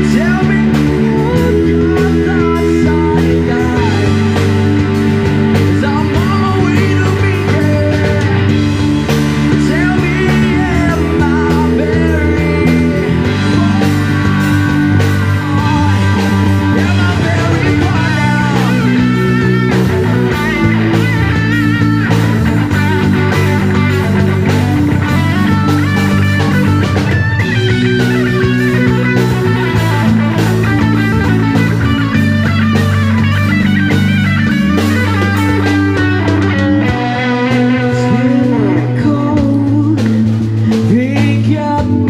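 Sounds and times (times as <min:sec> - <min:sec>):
electric guitar: 0:00.0 - 0:42.0
live rock band playing: 0:00.0 - 0:42.0.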